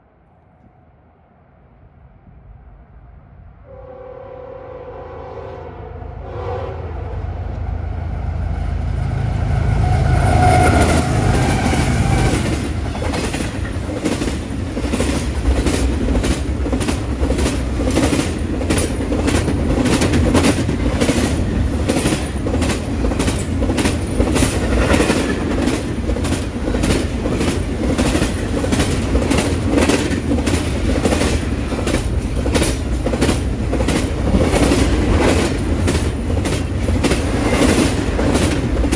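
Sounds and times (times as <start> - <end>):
diesel locomotives rumbling: 2.2 - 38.9
train horn blast: 3.6 - 12.4
train wheels clicking over rail joints: 10.5 - 38.9.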